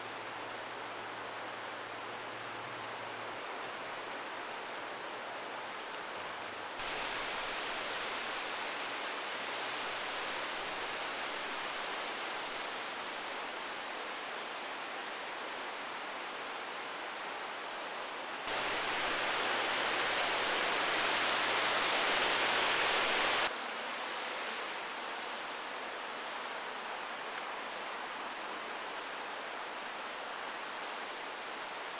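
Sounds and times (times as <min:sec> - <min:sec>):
heavy rain pouring: 0:06.8 - 0:11.6, 0:18.5 - 0:23.5.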